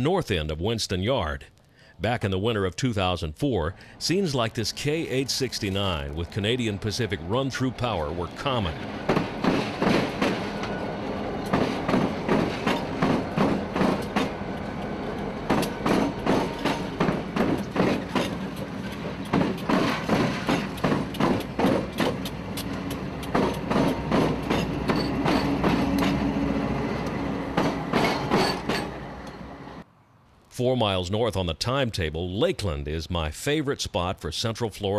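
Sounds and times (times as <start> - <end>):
freight train rumble: 3.7 - 29.8
train wheels clickety-clack: 8.8 - 26.4, 27.0 - 29.4.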